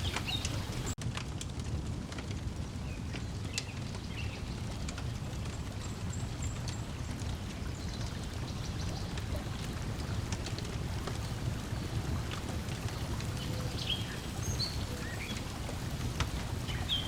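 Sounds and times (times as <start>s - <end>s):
lake water lapping: 0.0s - 1.0s, 6.8s - 17.0s
wood fire crackling: 0.0s - 17.0s.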